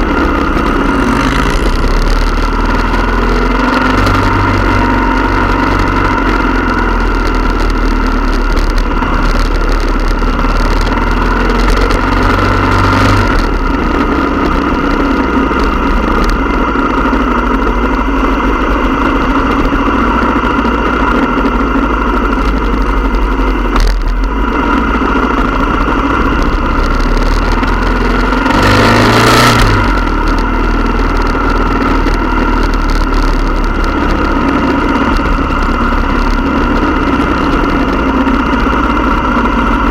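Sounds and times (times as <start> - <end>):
motorcycle engines running: 0.0 - 39.9
motorcycle revving: 0.0 - 39.9.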